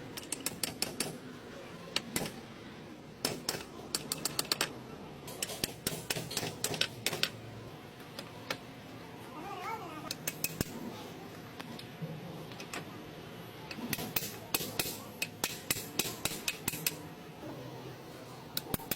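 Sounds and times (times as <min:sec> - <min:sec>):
metal tools clicking and tapping: 0:00.2 - 0:01.2, 0:03.2 - 0:04.7, 0:05.3 - 0:07.4, 0:10.1 - 0:10.7, 0:13.7 - 0:17.0, 0:18.6 - 0:18.9.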